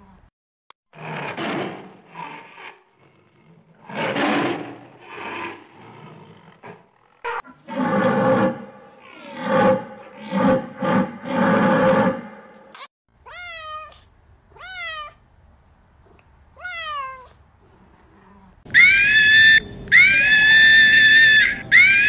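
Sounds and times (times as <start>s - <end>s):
deep pulsed animal calls: 7.5s - 12.7s
high-pitched drawn-out animal calls: 7.6s - 12.8s, 18.7s - 22.0s
cat meowing: 13.3s - 15.2s, 16.6s - 17.4s.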